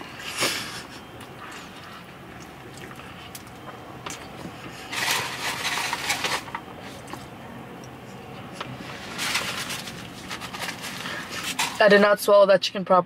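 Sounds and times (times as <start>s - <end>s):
person chewing food: 0.0s - 4.9s.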